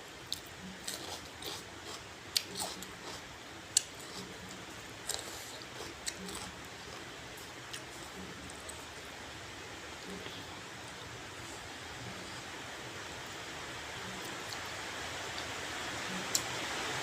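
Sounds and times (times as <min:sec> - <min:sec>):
crunchy chewing: 0:00.3 - 0:08.9
rain hiss: 0:08.6 - 0:17.0.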